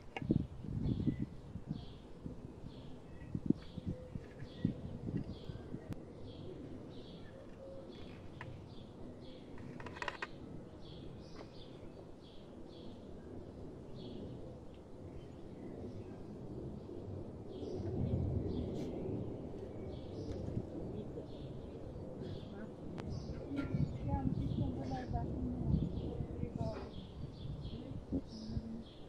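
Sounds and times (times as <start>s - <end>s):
low outdoor hum: 0.0s - 29.0s
small birds chirping: 0.0s - 29.0s
rattling bird call: 9.6s - 10.3s.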